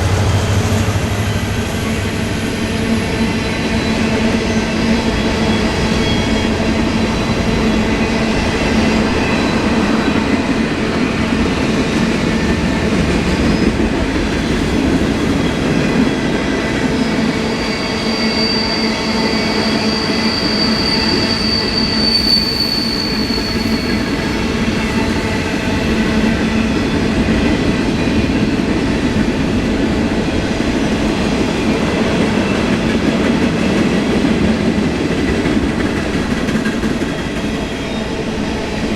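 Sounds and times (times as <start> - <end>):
freight train cars rolling: 0.0 - 16.3
train wheels squealing on rails: 0.0 - 38.9.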